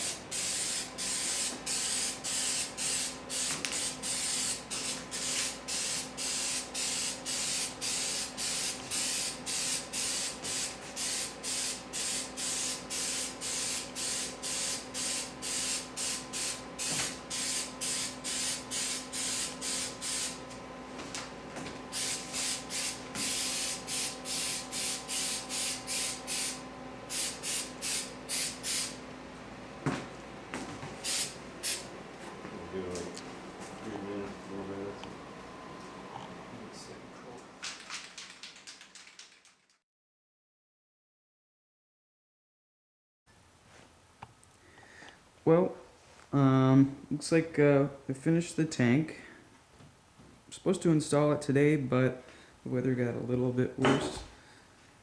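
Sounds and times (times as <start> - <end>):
aerosol spray hissing: 0.0 - 20.4, 21.9 - 29.0, 31.0 - 31.9.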